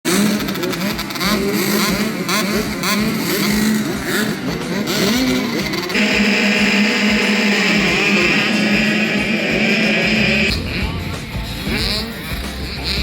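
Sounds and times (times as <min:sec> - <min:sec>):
dirt bike engines revving: 0:00.1 - 0:13.0
music: 0:03.6 - 0:13.0.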